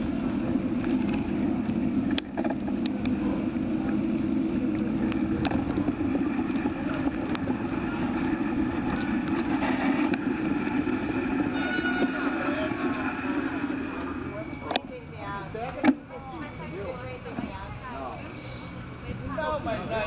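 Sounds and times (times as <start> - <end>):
wind rushing over microphone: 0.0 - 14.3.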